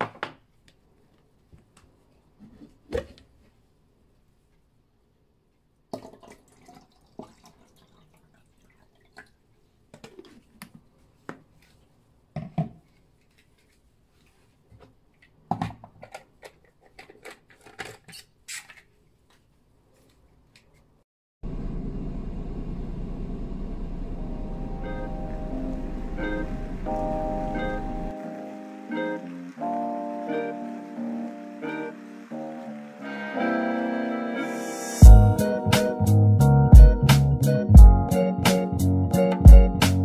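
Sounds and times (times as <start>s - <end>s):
background music: 24.3s - 40.0s.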